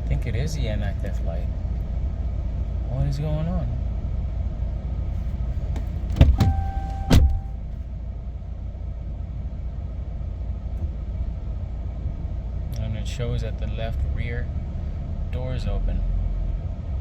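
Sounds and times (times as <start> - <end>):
truck low hum: 0.0 - 17.0
sharp clunks: 5.7 - 7.6.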